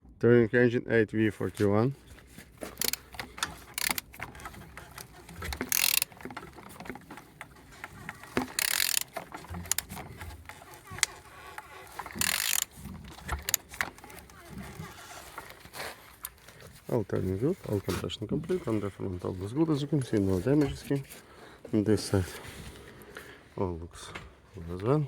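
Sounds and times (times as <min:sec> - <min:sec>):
ratchet wrench clicks: 0:02.8 - 0:06.3, 0:08.2 - 0:14.3.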